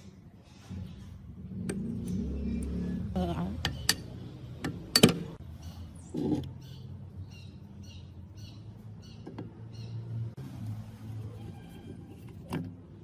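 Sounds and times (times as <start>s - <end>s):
bird chirping: 5.4s - 10.3s.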